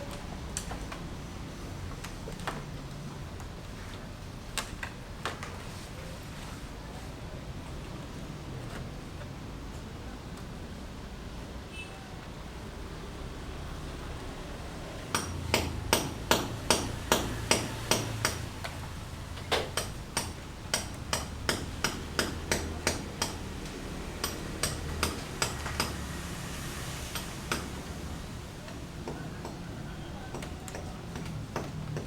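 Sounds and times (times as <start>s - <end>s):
hammer blows: 15.2s - 28.0s.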